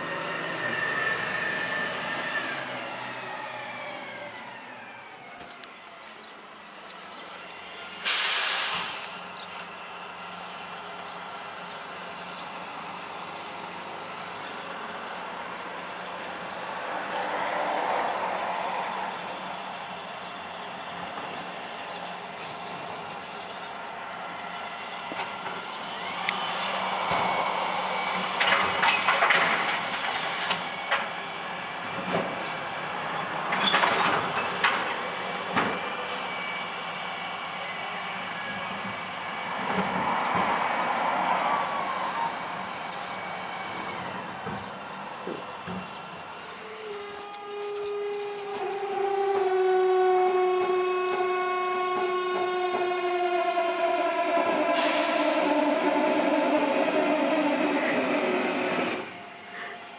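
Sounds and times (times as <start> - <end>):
refuse truck running: 0.0 - 59.9
bin truck creaking and squeaking: 28.3 - 30.9, 32.0 - 34.8
rushing noise: 52.9 - 59.6.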